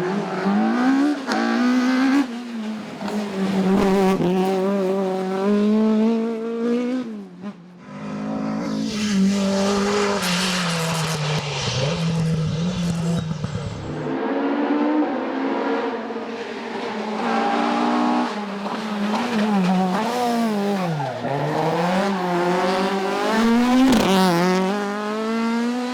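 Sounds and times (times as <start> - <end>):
racing car engine accelerating: 7.9 - 25.9.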